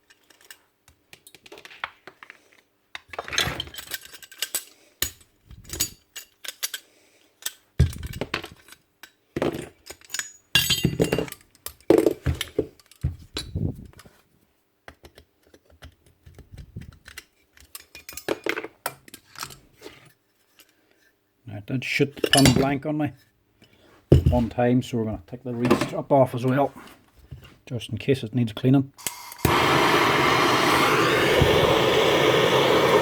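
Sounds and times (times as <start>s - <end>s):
metal parts clinking: 0.0s - 14.1s, 17.0s - 19.6s.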